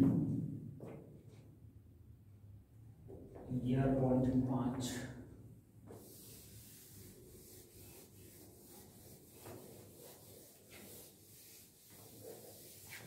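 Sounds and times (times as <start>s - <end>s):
duster rubbing on blackboard: 5.9s - 13.0s.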